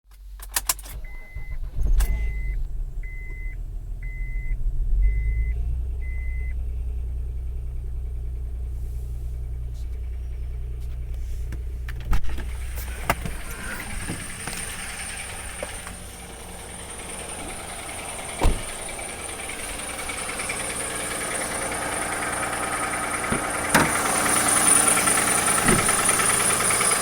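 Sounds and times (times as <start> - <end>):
car engine idling: 0.1 - 27.0
warning chime beeping: 1.0 - 6.5.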